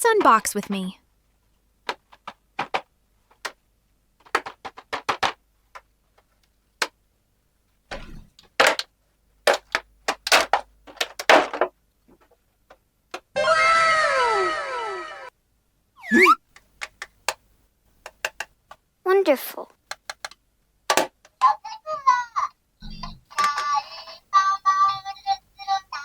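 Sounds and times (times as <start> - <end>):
plastic toy pieces clicking: 9.5 - 11.6, 18.0 - 18.6, 19.9 - 21.4, 23.3 - 24.0
falling tones sound effect: 16.0 - 16.4.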